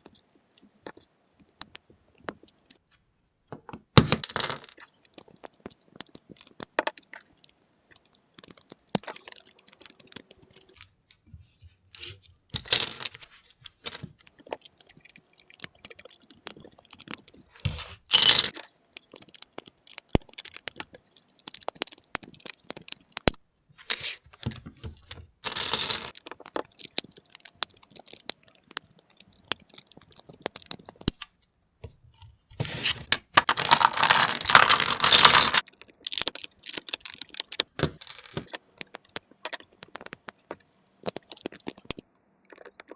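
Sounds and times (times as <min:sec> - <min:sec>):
plastic bricks clicking and rattling: 0:04.0 - 0:10.9, 0:12.6 - 0:31.2, 0:33.0 - 0:42.9
rustling and scraping: 0:17.4 - 0:18.5, 0:23.7 - 0:26.2, 0:32.1 - 0:35.6.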